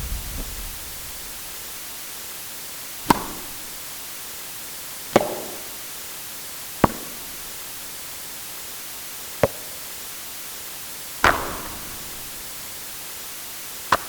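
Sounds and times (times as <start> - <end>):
steady hiss: 0.0 - 14.0
tennis ball hits: 3.1 - 3.6, 11.2 - 12.0.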